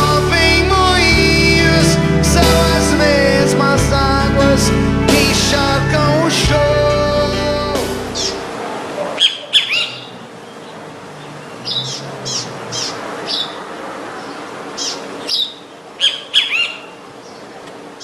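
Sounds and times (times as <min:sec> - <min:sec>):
song playing: 0:00.0 - 0:08.7
bird sharp high calls: 0:09.1 - 0:10.8, 0:11.5 - 0:17.5.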